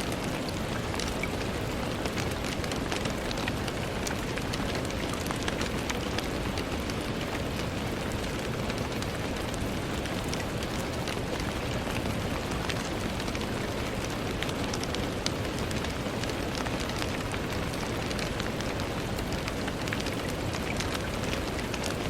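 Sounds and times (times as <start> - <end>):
rain on a window: 0.0 - 22.0.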